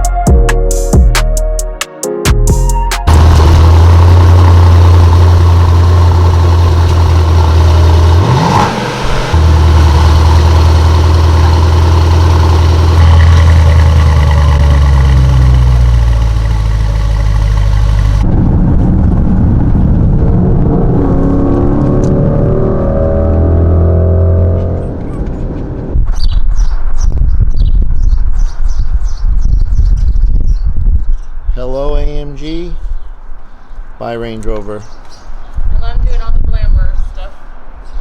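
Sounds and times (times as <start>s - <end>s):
engine revving: 3.1s - 25.8s
car engine and road noise: 3.1s - 29.6s, 33.1s - 38.0s.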